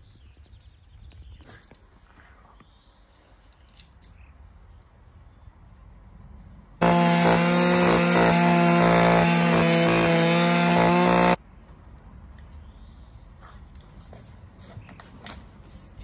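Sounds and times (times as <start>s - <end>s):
motor running at high speed: 6.8s - 11.4s.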